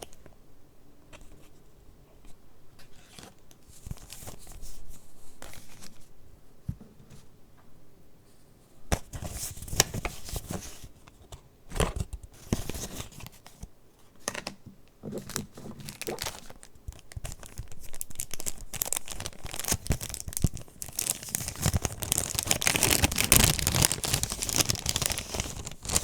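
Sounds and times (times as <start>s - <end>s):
paper pages rustling and crinkling: 2.8s - 6.1s, 11.7s - 13.7s, 15.2s - 26.0s.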